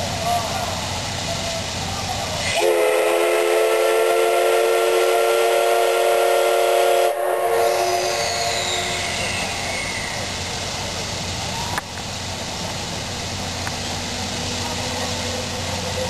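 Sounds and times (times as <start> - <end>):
steam whistle blast: 2.4 - 10.4.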